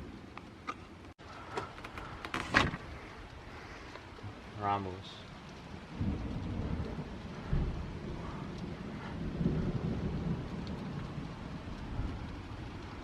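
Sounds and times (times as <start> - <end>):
thunder rumbling: 4.2 - 13.0.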